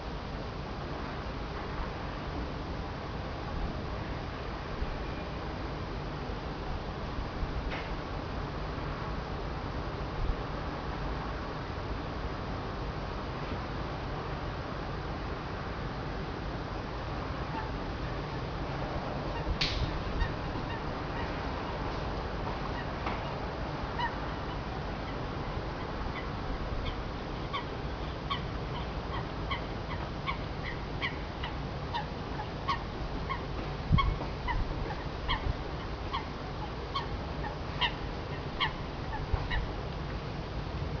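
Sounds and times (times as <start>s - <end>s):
steady low rumble: 16.1s - 41.0s.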